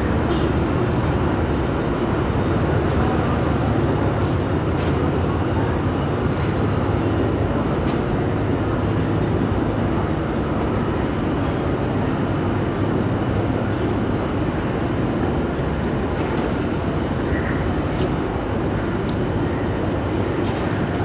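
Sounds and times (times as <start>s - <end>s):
moving train rumbling: 0.0s - 18.7s.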